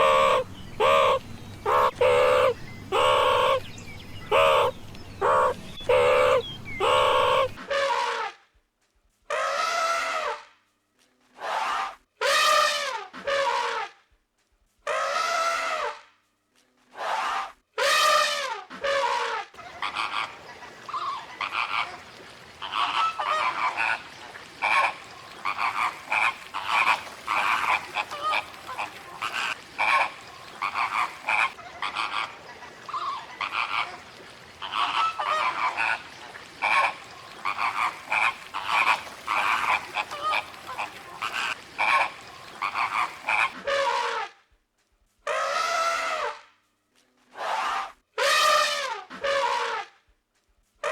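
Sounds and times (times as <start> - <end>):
animal calls: 0.0 - 8.0, 18.9 - 44.1.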